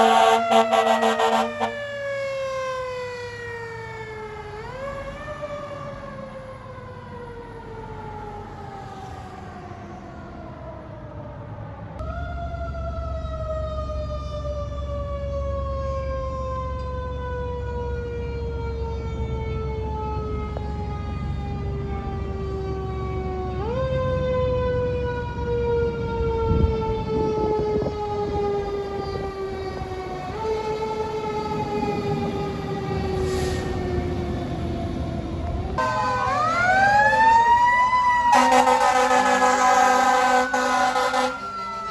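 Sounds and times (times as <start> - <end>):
loud air horn blast: 0.0 - 1.9, 35.8 - 37.5, 38.3 - 41.6
fire truck engine: 0.0 - 41.9
fire truck siren wailing: 0.0 - 41.9
mechanical siren winding down: 23.1 - 41.9
truck engine rumble: 24.6 - 41.9.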